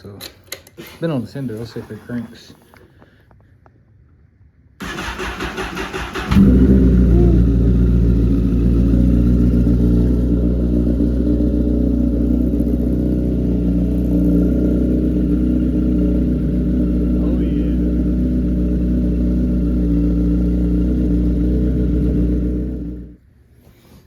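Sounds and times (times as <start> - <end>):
engine starter cranking: 4.8 - 7.1
motorcycle engine idling: 4.8 - 23.2.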